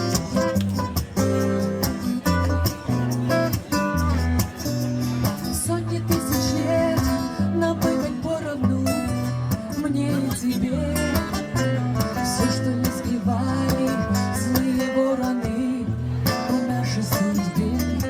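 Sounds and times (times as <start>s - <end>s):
strummed acoustic guitar: 0.0s - 18.0s.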